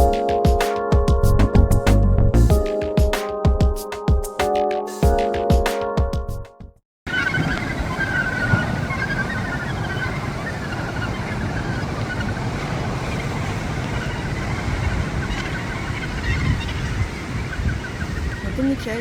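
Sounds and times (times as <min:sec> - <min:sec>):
gannet colony calling: 0:07.1 - 0:19.0
surf washing: 0:07.1 - 0:19.0
wind on microphone: 0:07.1 - 0:19.0.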